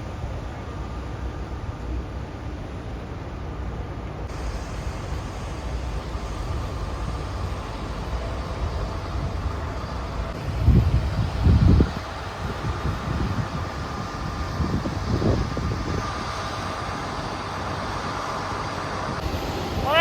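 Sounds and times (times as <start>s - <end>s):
wind buffeting microphone: 8.4s - 17.6s.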